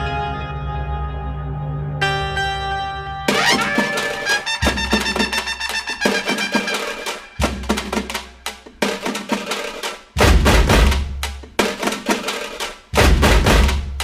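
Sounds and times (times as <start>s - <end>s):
music with drums and heavy bass: 3.3s - 14.0s.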